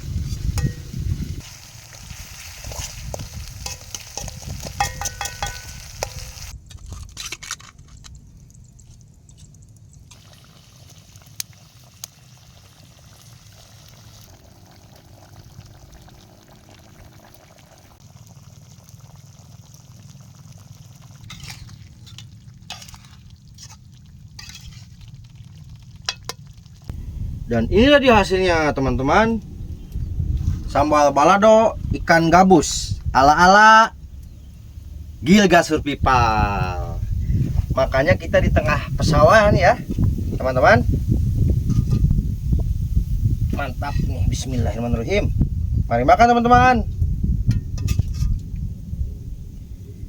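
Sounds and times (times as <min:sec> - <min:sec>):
sauce sizzling in a pan: 0:00.2 - 0:06.5
utensil clicks and scraping: 0:02.5 - 0:10.2.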